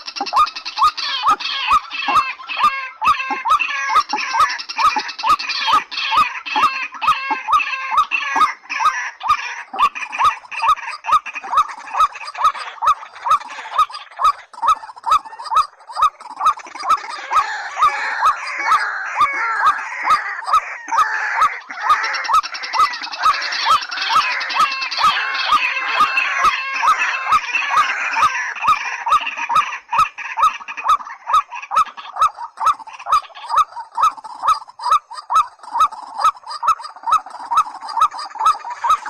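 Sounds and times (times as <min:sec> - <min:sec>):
high-pitched bird chatter: 0:00.0 - 0:39.0
rail bird calls: 0:00.0 - 0:39.0.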